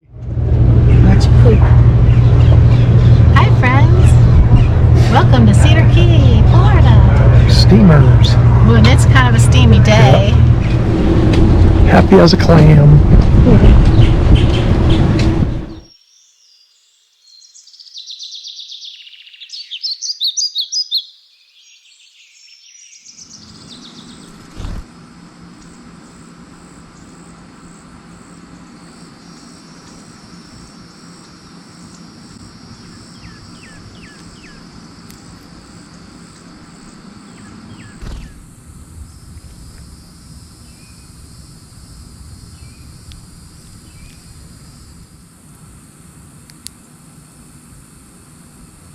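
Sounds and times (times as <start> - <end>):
insects buzzing: 0.4 - 48.9
bird chirps: 13.9 - 24.8, 31.8 - 34.7, 37.2 - 38.4
high-pitched bird calls: 17.4 - 24.5, 31.8 - 34.7.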